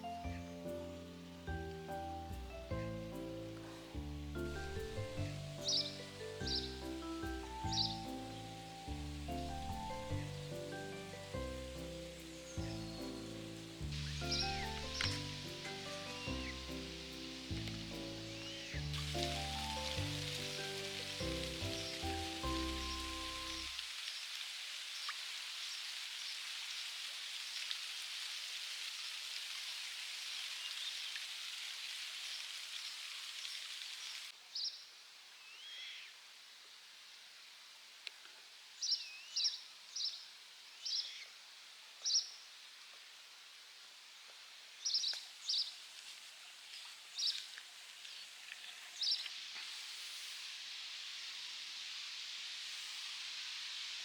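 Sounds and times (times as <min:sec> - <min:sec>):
steady high hiss: 0:00.0 - 0:34.4, 0:35.0 - 0:54.0
high bird chirps: 0:04.4 - 0:23.7.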